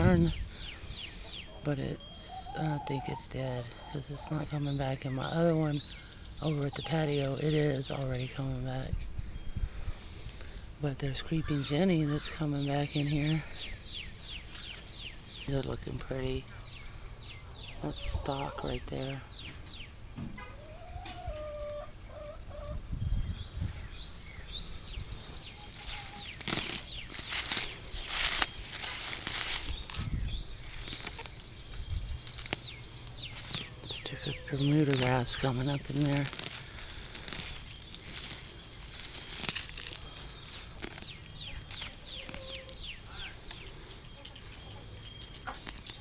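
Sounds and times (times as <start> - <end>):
small birds chirping: 0.0 - 46.0
drawn-out animal call: 1.4 - 4.6
weeds rustling and tearing: 23.6 - 46.0
dry plant stems crackling: 24.0 - 46.0
songbird whistling: 39.9 - 46.0.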